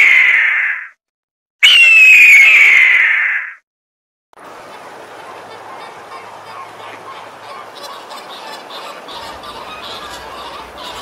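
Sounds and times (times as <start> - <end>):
flamingos honking: 4.4 - 11.0.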